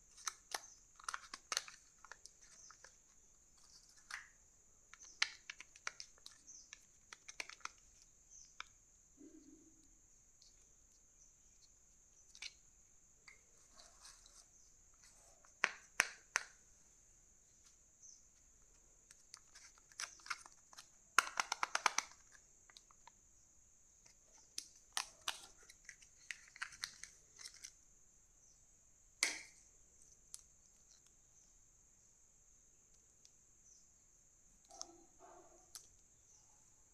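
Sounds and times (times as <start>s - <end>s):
sharp plastic clicks: 19.1s - 23.2s.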